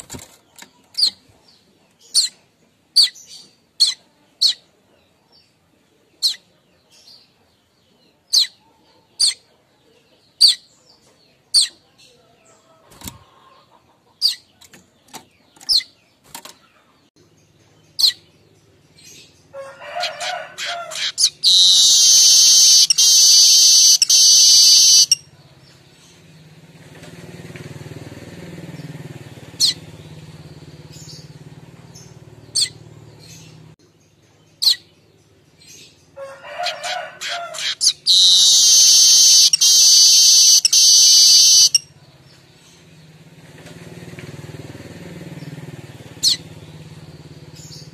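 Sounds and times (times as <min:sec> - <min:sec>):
bird chattering call: 0:20.1 - 0:25.2, 0:29.6 - 0:29.8, 0:36.6 - 0:41.9
high wheezing bird buzz: 0:21.4 - 0:25.1, 0:38.1 - 0:41.8.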